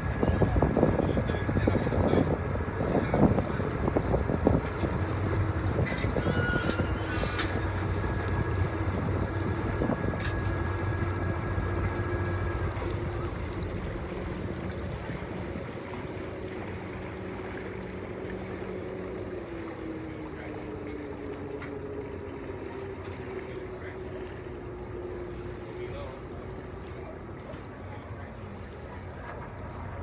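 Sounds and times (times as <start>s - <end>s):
wind on microphone: 0.0s - 13.6s
ferry engines running: 0.0s - 30.0s
rushing water: 0.0s - 30.0s.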